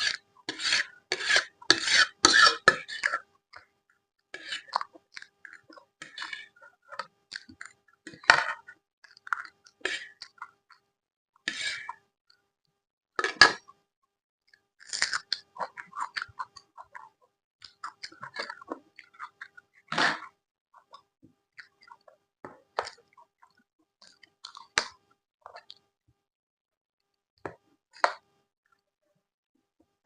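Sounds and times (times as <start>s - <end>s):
chewing food: 4.4s - 10.9s, 14.5s - 25.9s.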